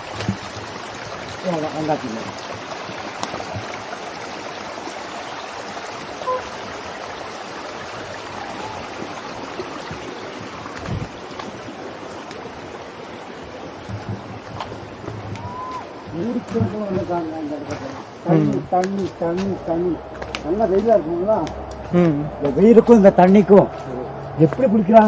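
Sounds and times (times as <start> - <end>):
small waterfall rushing: 0.0 - 23.7.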